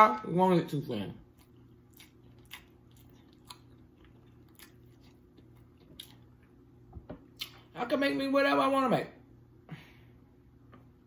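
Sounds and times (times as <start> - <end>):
low room hum: 0.0 - 11.0
soft wet chewing clicks: 1.3 - 6.6, 7.2 - 7.7.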